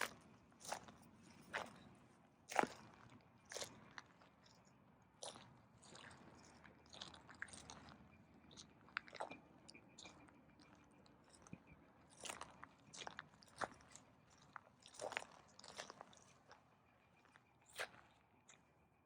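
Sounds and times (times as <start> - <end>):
footsteps crunching on loose ground: 0.0 - 4.6, 5.2 - 18.2.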